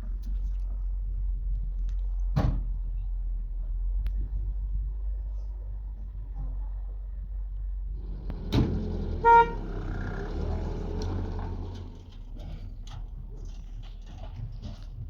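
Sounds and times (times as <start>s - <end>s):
low rumble: 0.0s - 14.6s
vehicle horn toot: 8.1s - 11.3s.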